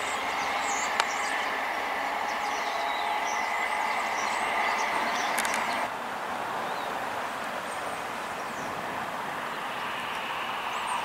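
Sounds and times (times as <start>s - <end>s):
steady high whine: 0.0s - 5.9s, 8.6s - 11.0s
diesel train rushing: 0.0s - 11.0s.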